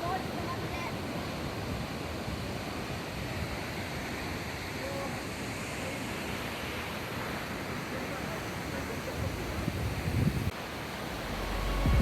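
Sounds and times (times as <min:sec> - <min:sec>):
waterfall rushing: 0:10.6 - 0:12.0.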